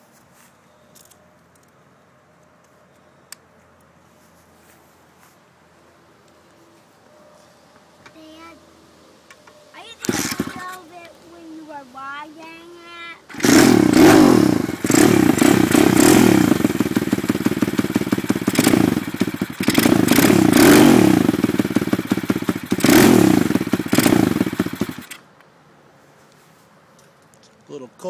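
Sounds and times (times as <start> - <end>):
motorcycle engine revving: 10.0 - 10.8, 13.3 - 25.2.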